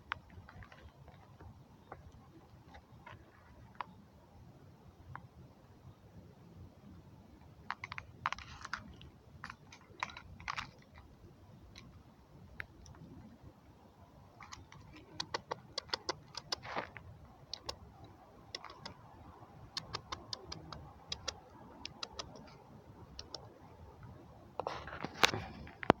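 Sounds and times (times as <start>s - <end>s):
irregular sharp clicks and taps: 19.7s - 22.5s.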